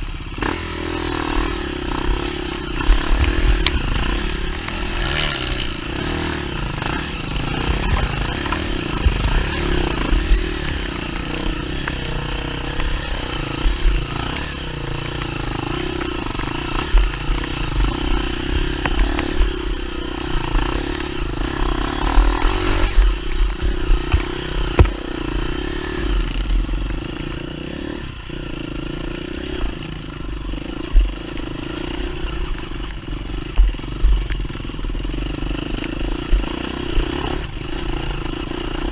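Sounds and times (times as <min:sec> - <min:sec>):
dirt bike engine running: 0:00.0 - 0:38.9
bike clattering over rough ground: 0:01.2 - 0:25.4.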